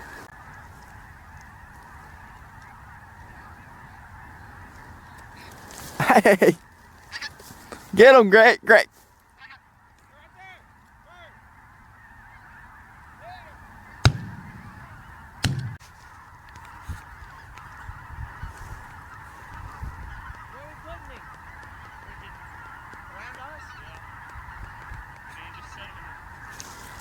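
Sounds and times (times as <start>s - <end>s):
flock of geese honking: 0.0s - 27.0s
shotgun shots: 14.0s - 15.8s.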